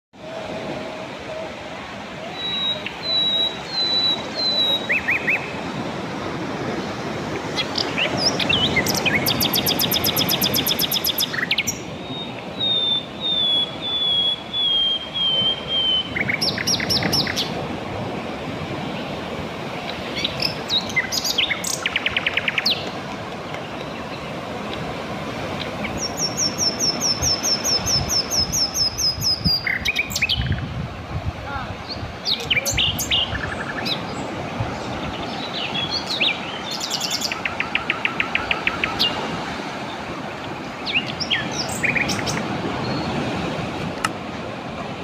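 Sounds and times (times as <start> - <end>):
bird singing whistled notes: 2.3 - 5.5, 7.8 - 17.5, 25.9 - 30.6, 32.2 - 34.2, 34.8 - 39.2.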